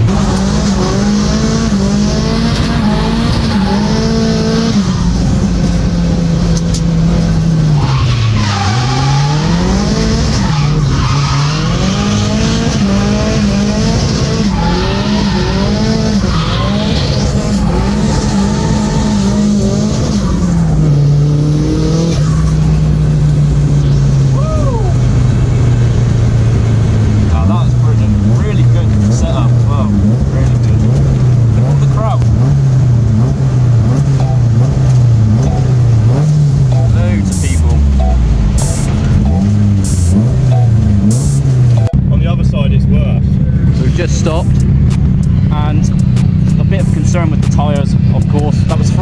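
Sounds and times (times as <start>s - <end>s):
tyres squealing: 0.0s - 25.6s
car engine revving: 0.0s - 49.0s.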